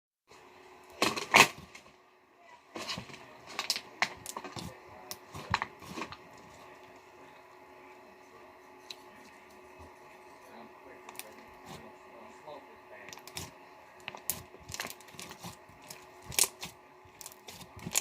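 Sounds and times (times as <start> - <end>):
slime crackling and popping: 13.2 - 18.0.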